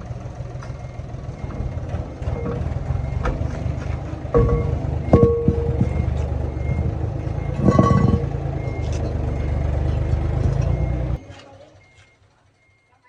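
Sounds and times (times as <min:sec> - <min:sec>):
bus engine running: 0:00.0 - 0:12.7
metallic clank: 0:01.4 - 0:06.8, 0:07.4 - 0:09.1.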